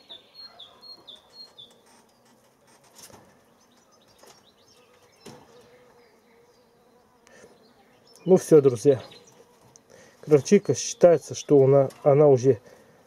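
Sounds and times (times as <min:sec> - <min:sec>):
small bird chirping: 0:00.0 - 0:02.4, 0:03.5 - 0:09.6.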